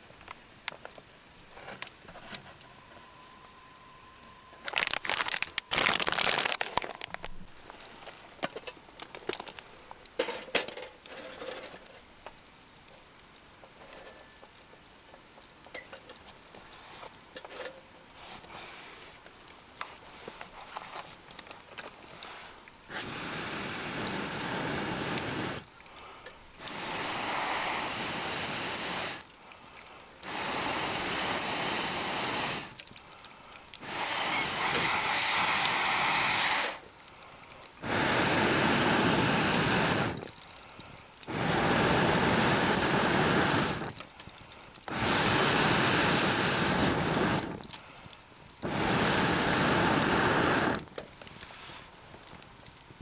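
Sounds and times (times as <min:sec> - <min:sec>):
air blown into campfire: 0:22.1 - 0:26.0, 0:26.6 - 0:37.0, 0:37.7 - 0:52.0.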